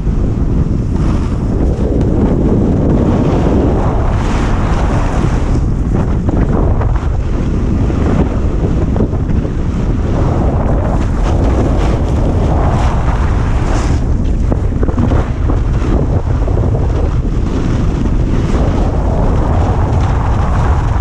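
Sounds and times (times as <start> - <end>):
snowboard rushing over snow: 0.0 - 21.0
wind buffeting microphone: 0.0 - 21.0.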